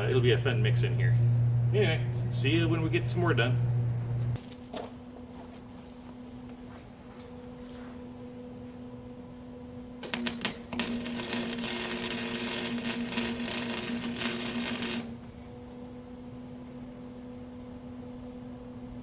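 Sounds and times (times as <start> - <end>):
arc welding crackling: 0.0 - 4.8, 10.0 - 15.4
steady electrical hum: 0.0 - 19.0
sputtering arc strikes: 10.0 - 15.3.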